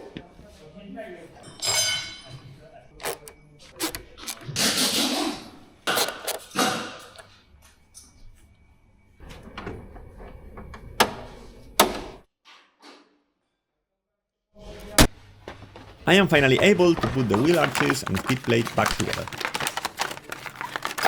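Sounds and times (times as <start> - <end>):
plastic housing clicks and scraping: 3.0 - 4.5, 5.9 - 6.6, 17.0 - 21.0.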